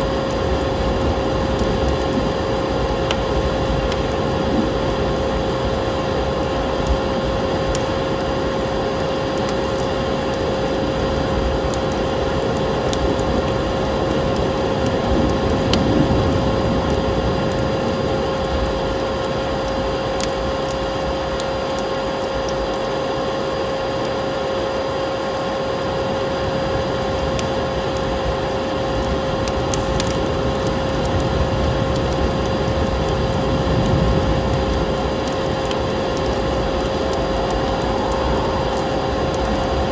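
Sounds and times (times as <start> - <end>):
constant hum: 0.0 - 39.9
wood fire crackling: 0.0 - 39.9
steady rushing hiss: 25.8 - 39.9.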